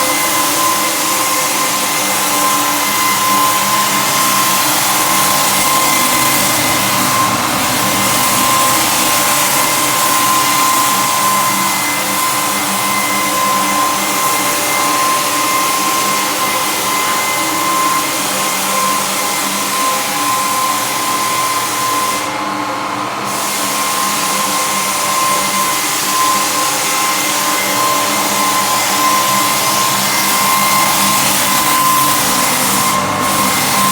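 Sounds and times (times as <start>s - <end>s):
sanding hiss on floorboards: 0.0s - 22.5s, 23.2s - 33.9s
floor sander motor whine: 0.0s - 33.9s.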